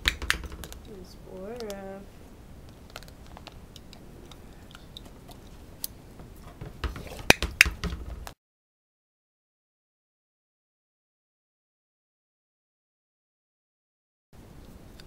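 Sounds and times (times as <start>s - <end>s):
sharp knocks: 0.0s - 1.0s, 6.2s - 8.4s.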